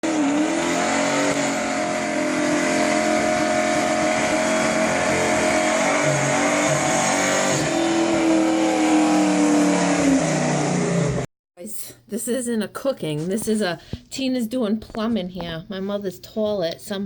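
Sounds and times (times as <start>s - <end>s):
vehicle engine running: 0.0s - 11.3s.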